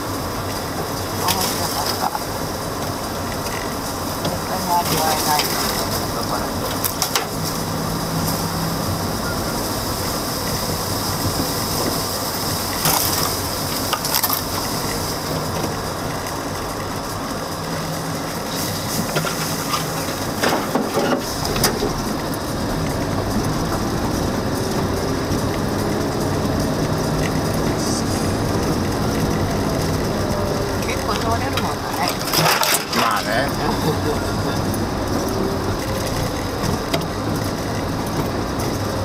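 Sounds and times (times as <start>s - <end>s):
car engine hum: 0.0s - 39.0s
knocks and scrapes: 18.4s - 22.2s.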